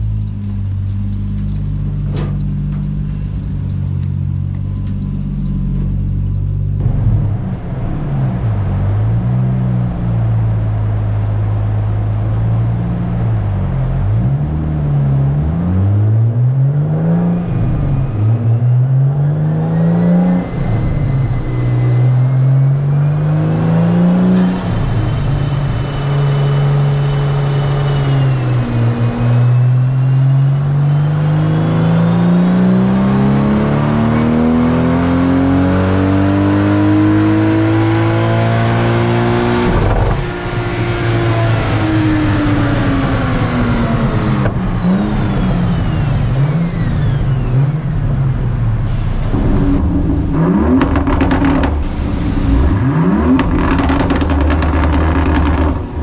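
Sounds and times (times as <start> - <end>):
high whine: 0.0 - 15.1, 36.8 - 56.0
car engine revving: 0.0 - 56.0.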